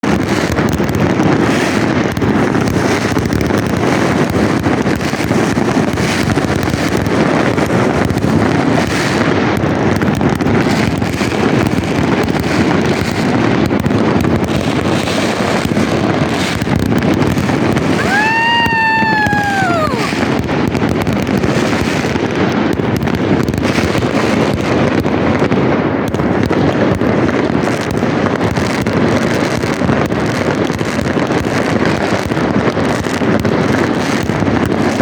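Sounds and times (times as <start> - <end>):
fireworks bangs and crackles: 0.0 - 35.0
wind on microphone: 0.0 - 35.0
falling firework whistle: 17.8 - 20.4.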